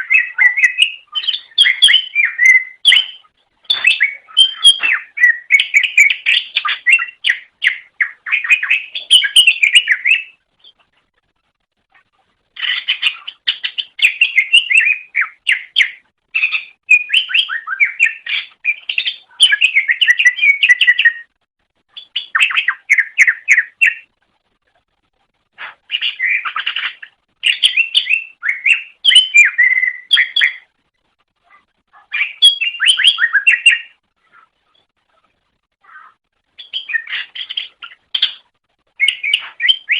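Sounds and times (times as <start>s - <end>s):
bird singing chattering phrases: 0.0s - 10.9s, 12.6s - 21.2s, 32.0s - 34.9s, 35.8s - 39.9s.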